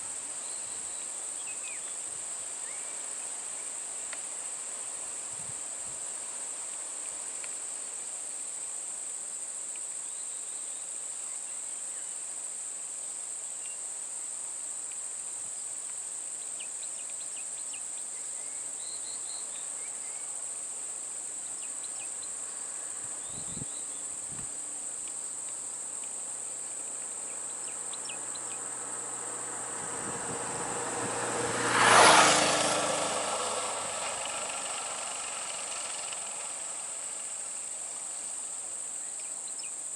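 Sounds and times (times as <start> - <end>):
high-pitched insect chorus: 0.0 - 39.9
motor vehicle passing: 27.5 - 38.4.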